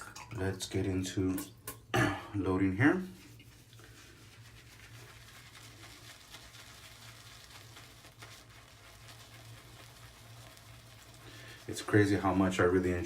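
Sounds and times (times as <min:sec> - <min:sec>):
shaving brush swirling on soap: 0:03.0 - 0:13.0.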